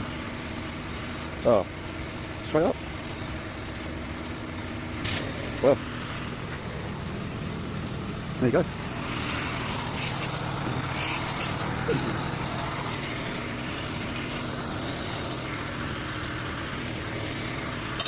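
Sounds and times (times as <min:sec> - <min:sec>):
engine running: 0:00.0 - 0:18.0
compressed air hissing: 0:08.8 - 0:15.9.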